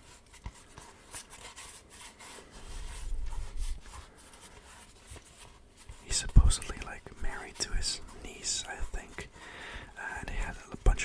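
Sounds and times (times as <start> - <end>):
rubbing and scratching strokes: 0.0 - 11.0.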